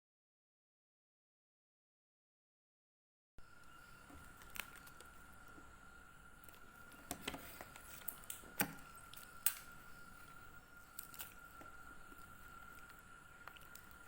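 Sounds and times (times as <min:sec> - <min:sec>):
faint high-pitched whine: 0:03.4 - 0:14.0.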